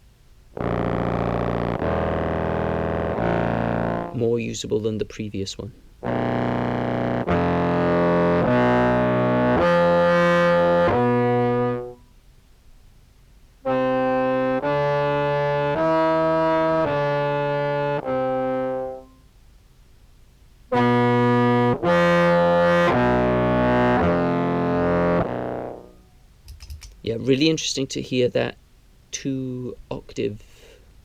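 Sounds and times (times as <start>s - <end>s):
fuzzy contrabass clarinet notes: 0.0s - 4.5s, 5.9s - 12.2s, 13.6s - 19.3s, 20.7s - 26.2s.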